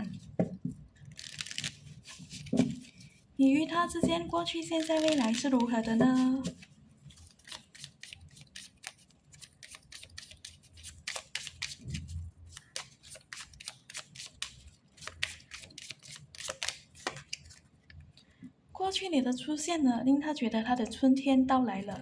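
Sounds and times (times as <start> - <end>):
cards being shuffled: 1.1 - 3.0, 4.7 - 17.6.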